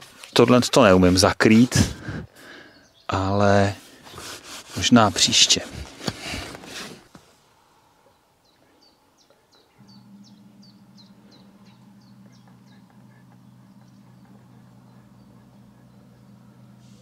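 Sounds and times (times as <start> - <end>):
small bird chirping: 8.1 - 17.0
steady low hum: 9.0 - 17.0.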